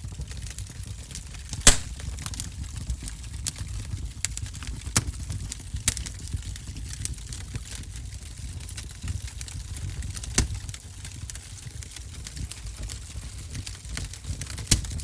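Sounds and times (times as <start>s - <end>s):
wood fire crackling: 1.6s - 2.5s, 5.8s - 15.0s.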